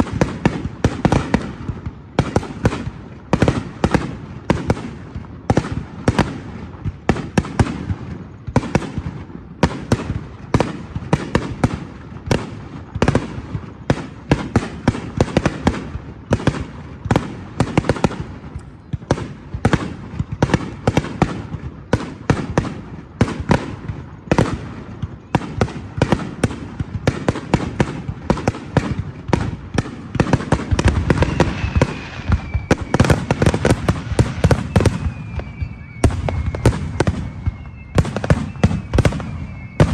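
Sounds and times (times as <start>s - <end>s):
fireworks bursts and bangs: 0.0s - 39.9s
falling firework whistle: 17.2s - 39.9s.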